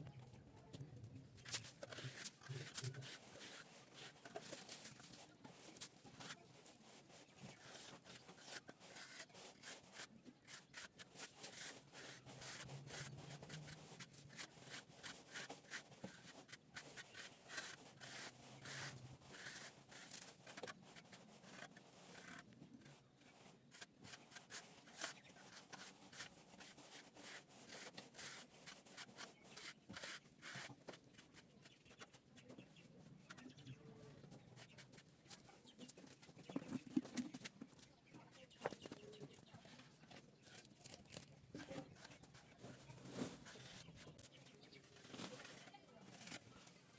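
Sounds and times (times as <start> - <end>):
trowel scraping plastered wall: 1.5 - 22.5, 23.6 - 32.1.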